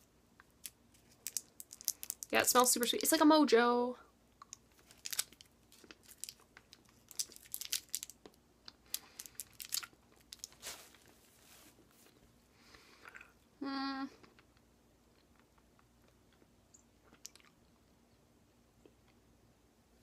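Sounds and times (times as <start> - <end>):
person chewing candy: 0.4 - 2.4, 4.3 - 10.6, 12.0 - 13.5, 14.2 - 18.2
person humming briefly: 13.6 - 14.2.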